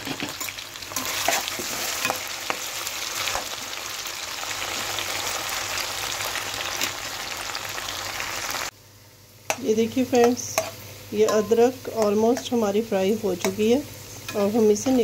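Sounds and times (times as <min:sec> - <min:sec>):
spatula stirring in oil: 0:00.0 - 0:03.8
ginger sizzling in hot oil: 0:00.0 - 0:08.7, 0:09.4 - 0:15.0.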